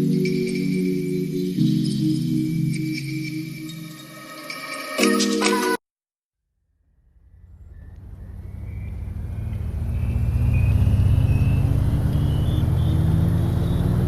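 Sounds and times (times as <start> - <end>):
vehicle engine running: 6.8 - 14.0
thin rising whine: 6.9 - 14.0.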